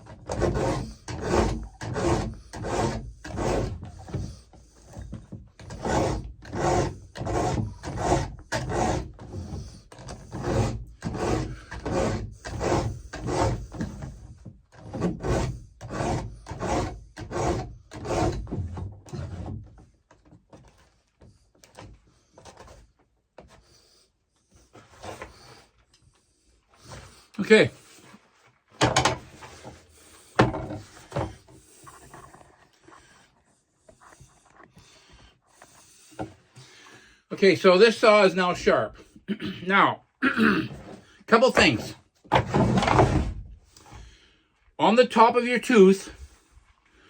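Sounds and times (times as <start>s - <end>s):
file rasping chainsaw teeth: 0.0s - 19.5s.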